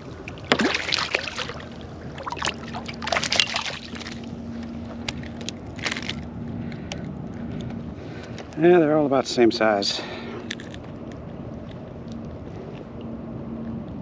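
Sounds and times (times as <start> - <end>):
water splashing at kayak: 0.0 - 4.4
faint steady hum: 0.0 - 14.0.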